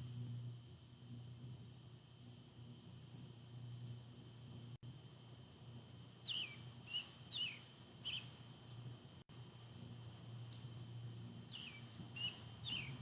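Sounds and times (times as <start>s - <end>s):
faint steady hum: 0.0s - 13.0s
songbird chirping faintly: 6.3s - 8.4s, 11.5s - 13.0s.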